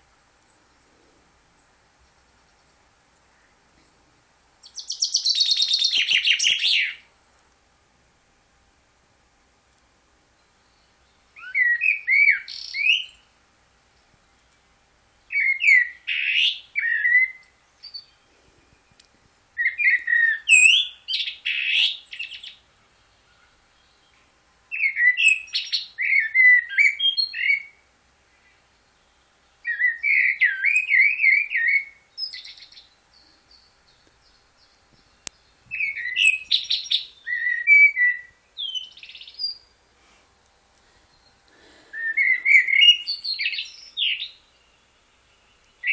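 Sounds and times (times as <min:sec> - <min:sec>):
songbird warbling: 0:04.6 - 0:07.1, 0:10.6 - 0:13.3, 0:15.3 - 0:19.0, 0:19.6 - 0:39.8, 0:41.0 - 0:45.9.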